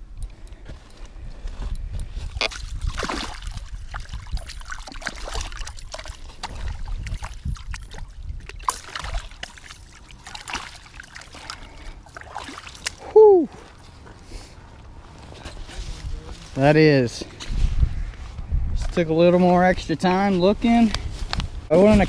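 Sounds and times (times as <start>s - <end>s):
water sloshing and splashing: 1.6s - 14.2s.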